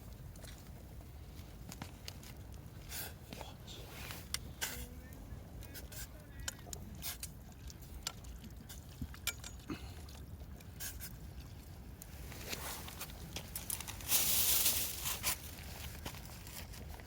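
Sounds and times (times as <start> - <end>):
small clicks and scrapes: 1.3 - 4.9, 5.6 - 17.0
rustle: 12.0 - 17.0.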